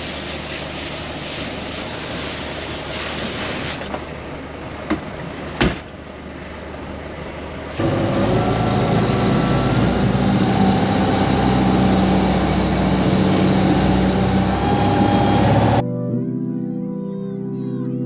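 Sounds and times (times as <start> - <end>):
water noise: 0.0 - 4.2, 7.8 - 15.8
wind: 0.0 - 15.8
small boat engine running: 6.4 - 15.8.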